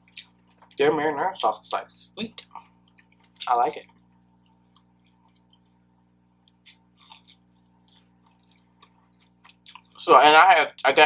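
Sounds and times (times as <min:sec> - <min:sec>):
person chewing: 0:00.0 - 0:01.8, 0:02.4 - 0:10.0
soft crunches: 0:06.5 - 0:10.0.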